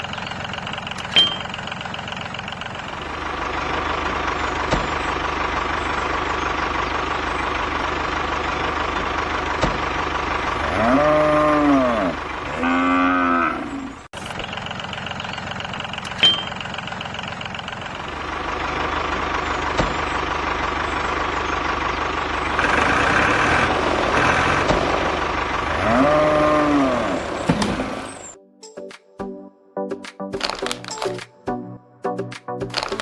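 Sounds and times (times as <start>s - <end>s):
cow mooing: 10.6s - 14.0s, 25.8s - 27.2s.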